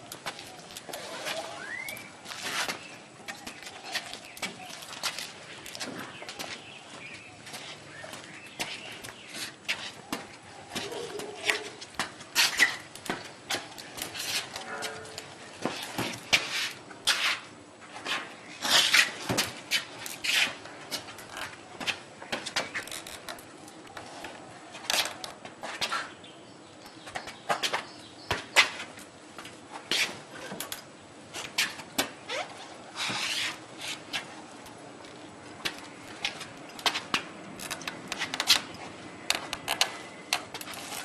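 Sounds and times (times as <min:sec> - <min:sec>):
footsteps: 0:00.0 - 0:21.2
sharp clicks and knocks: 0:35.6 - 0:40.8.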